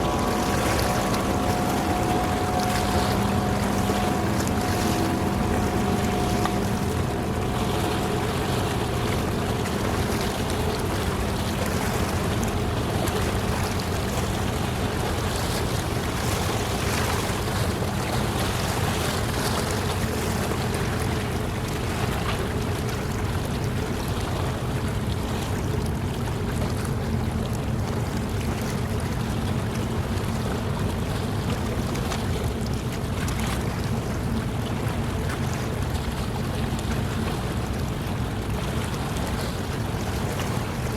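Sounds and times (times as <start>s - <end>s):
ship engine rumble: 0.0s - 40.9s
water noise: 0.0s - 40.9s
wind: 0.0s - 40.9s.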